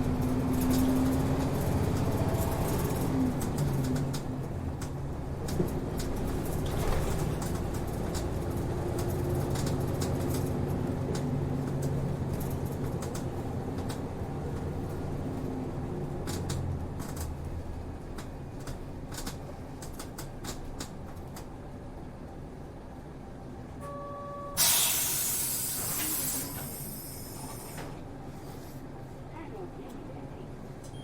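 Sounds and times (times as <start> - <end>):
bus diesel engine running: 0.0 - 31.0
interior clicks and rattles: 0.1 - 21.6.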